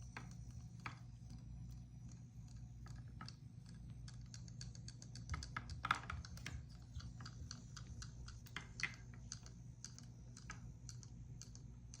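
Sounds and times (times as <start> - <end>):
light clicks and taps: 0.0 - 12.0
low steady hum: 0.0 - 12.0.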